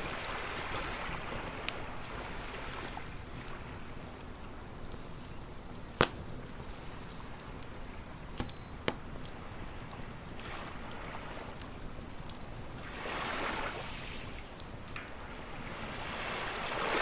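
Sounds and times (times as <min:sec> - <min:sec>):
waves washing in: 0:00.0 - 0:04.2, 0:12.8 - 0:14.4, 0:15.3 - 0:17.0
wood fire crackling: 0:00.0 - 0:17.0
sharp pops of fire: 0:04.2 - 0:10.8.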